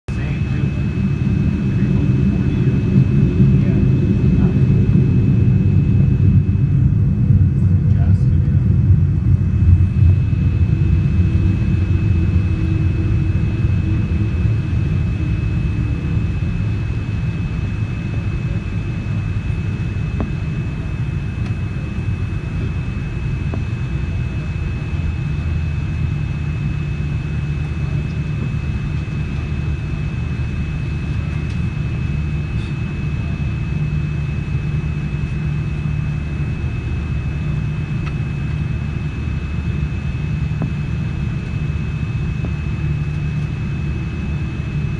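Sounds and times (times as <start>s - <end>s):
high-pitched engine whine: 0.1s - 44.9s
low engine rumble: 0.1s - 44.9s.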